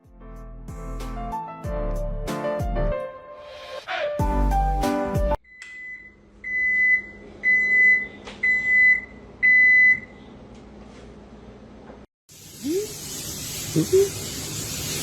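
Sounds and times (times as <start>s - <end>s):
music: 0.0s - 5.4s.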